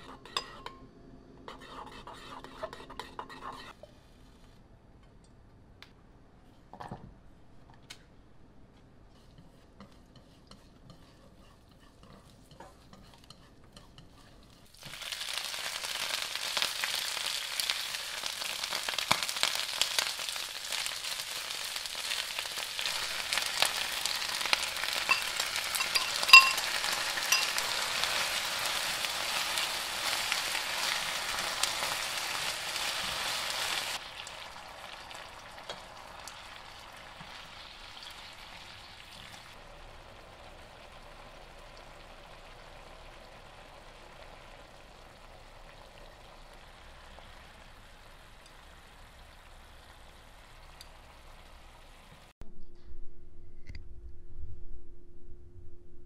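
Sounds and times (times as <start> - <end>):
garlic frying in oil: 9.2 - 52.3
vegetables sizzling in hot oil: 14.4 - 52.3
metallic clink: 25.1 - 27.6.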